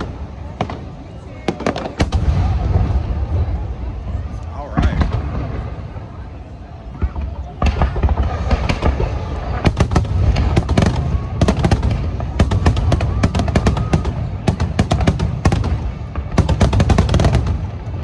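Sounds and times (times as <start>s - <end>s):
firework shells bursting and crackling: 7.0s - 18.0s.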